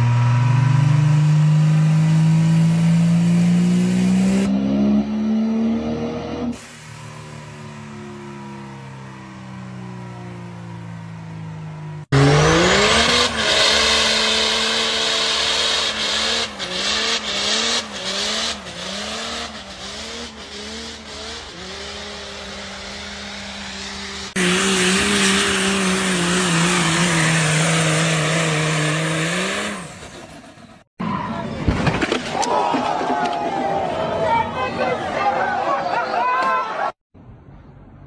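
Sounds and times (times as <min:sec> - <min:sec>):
diesel truck engine revving: 0:00.0 - 0:30.9.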